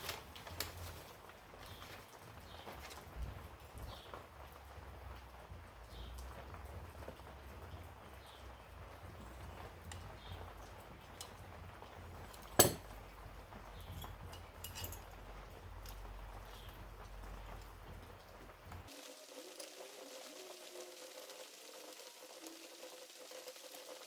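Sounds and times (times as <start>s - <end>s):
sharp clank: 12.4s - 12.9s
small hard objects clinking: 13.8s - 15.2s.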